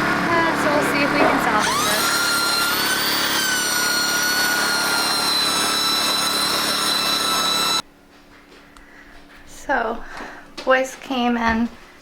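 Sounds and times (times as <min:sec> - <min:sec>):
belt sander on wood: 0:00.0 - 0:07.8.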